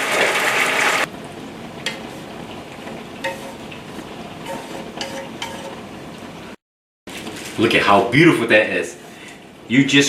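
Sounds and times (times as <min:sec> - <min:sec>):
stir-fry sizzling in a pan: 0:00.0 - 0:06.6.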